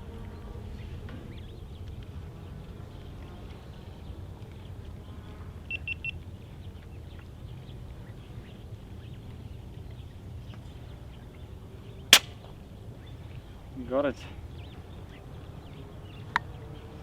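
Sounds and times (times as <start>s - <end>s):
air rifle shot crack: 12.2s - 12.4s.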